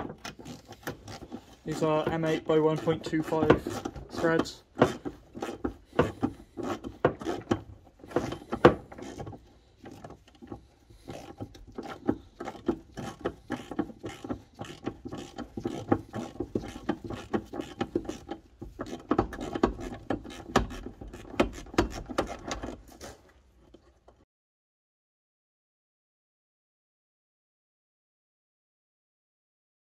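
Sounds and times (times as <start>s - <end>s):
hand tools clicking and tapping metal: 0.0s - 22.9s.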